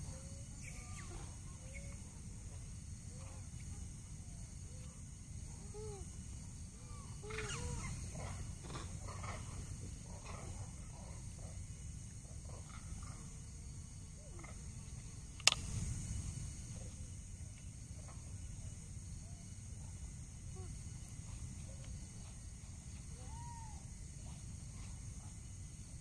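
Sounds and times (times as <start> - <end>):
insects droning: 0.0 - 26.0
sharp click: 15.4 - 15.7.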